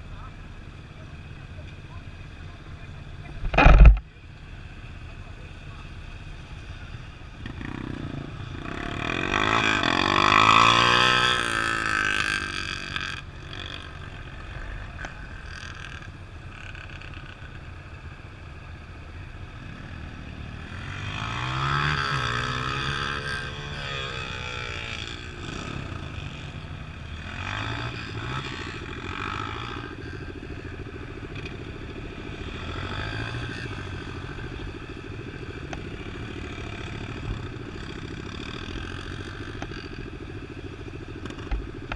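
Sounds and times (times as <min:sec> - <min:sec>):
off-road vehicle engine revving: 0:07.4 - 0:16.0, 0:19.7 - 0:40.1.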